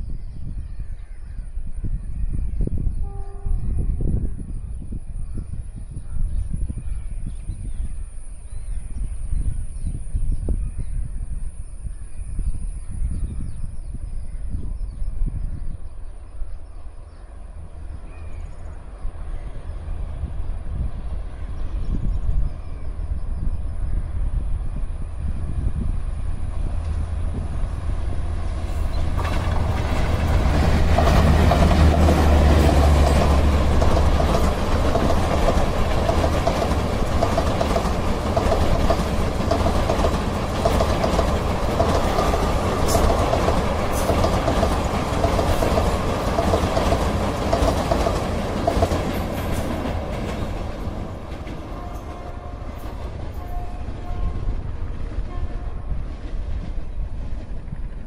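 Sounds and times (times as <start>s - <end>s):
electric locomotive rumbling: 0.0s - 58.0s
wheels clickety-clack over rail joints: 26.5s - 58.0s.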